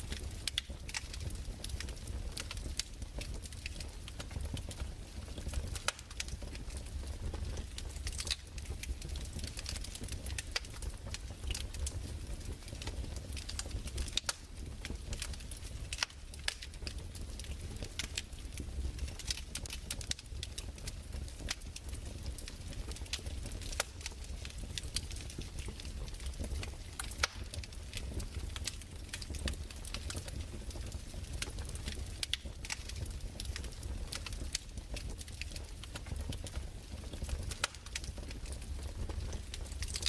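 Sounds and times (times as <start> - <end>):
fire crackling and popping: 0.0 - 40.0.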